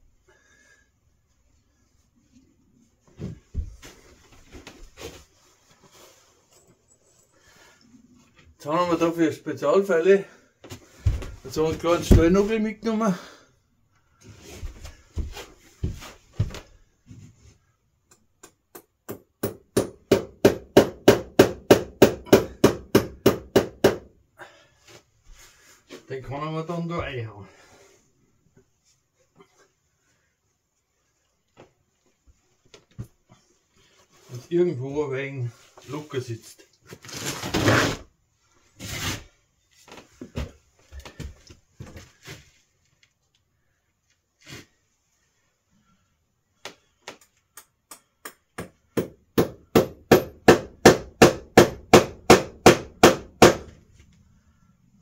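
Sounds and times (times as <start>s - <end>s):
hammer hitting a nail: 18.1s - 24.1s, 47.1s - 53.7s.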